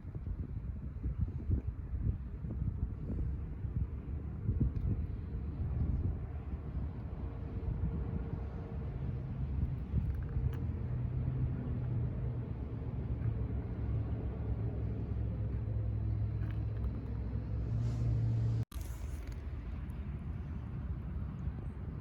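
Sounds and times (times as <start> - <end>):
vehicle engine running: 7.7 - 22.0.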